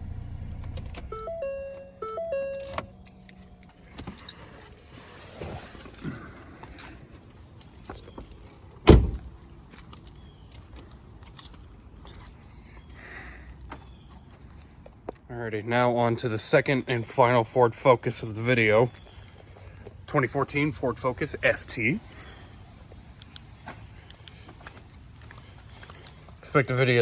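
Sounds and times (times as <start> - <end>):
electronic chime tones: 1.0 - 2.9
car door slam: 8.8 - 9.4.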